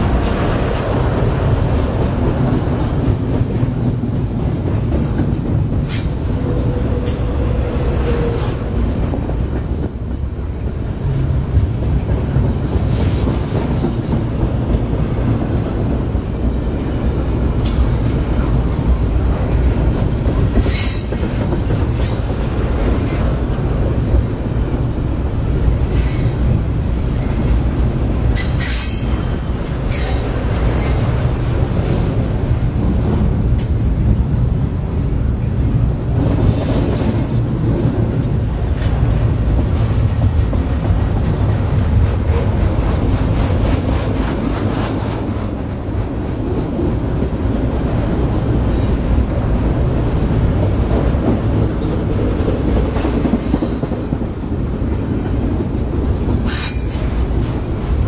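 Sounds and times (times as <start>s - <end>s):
train wheels rumbling on rail: 0.0s - 58.0s
wheels clacking over rail joints: 0.0s - 58.0s
wheel squeal: 22.8s - 31.1s.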